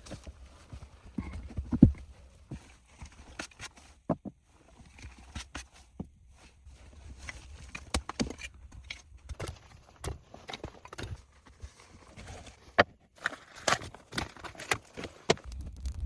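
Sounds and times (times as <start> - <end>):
low steady rumble: 15.5 - 16.0.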